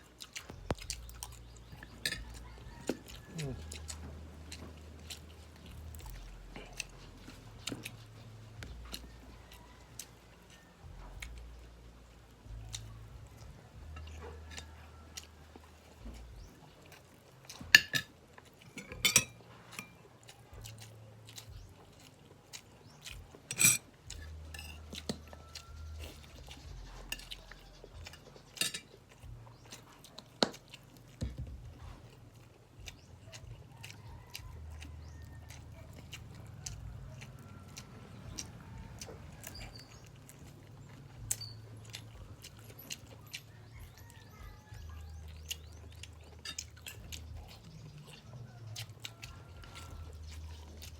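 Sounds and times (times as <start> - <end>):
chewing and mouth sounds: 0.0 - 50.9
utensils clinking on plate: 1.8 - 2.4, 17.7 - 18.1, 18.7 - 20.0, 23.5 - 23.9, 24.5 - 25.2, 28.1 - 29.0.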